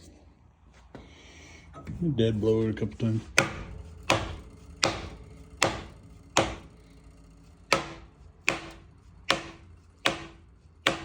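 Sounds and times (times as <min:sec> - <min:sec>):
hammer striking metal: 0:03.4 - 0:06.8, 0:07.7 - 0:11.0.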